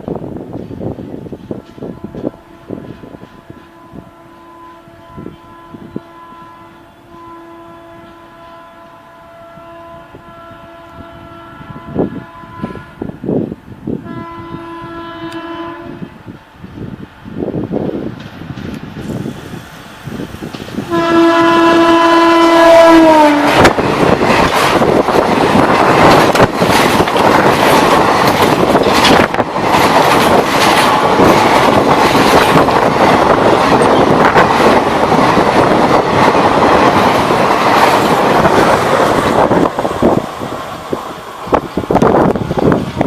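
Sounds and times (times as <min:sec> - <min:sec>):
locomotive horn: 0:01.8 - 0:13.1, 0:14.0 - 0:16.2, 0:20.9 - 0:23.8.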